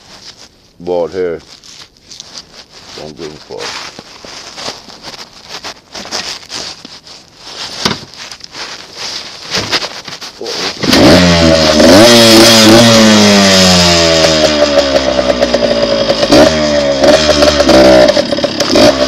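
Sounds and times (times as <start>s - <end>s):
dirt bike engine revving: 10.5s - 19.0s.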